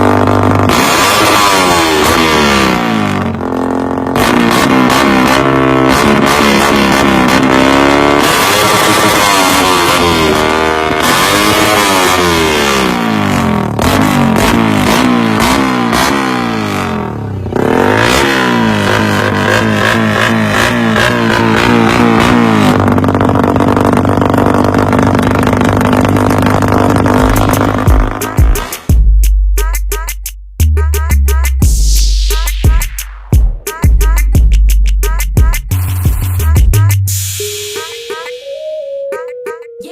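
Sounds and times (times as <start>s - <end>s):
small motorcycle engine revving: 0.0s - 28.9s.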